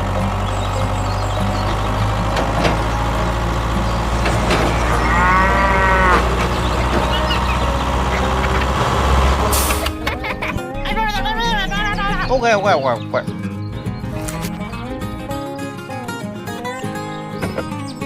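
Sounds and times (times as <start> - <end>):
cow mooing: 4.3 - 9.7.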